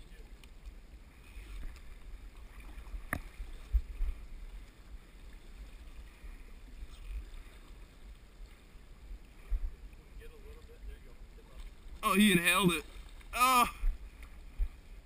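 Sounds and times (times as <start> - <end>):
river water rushing: 11.8 - 13.9.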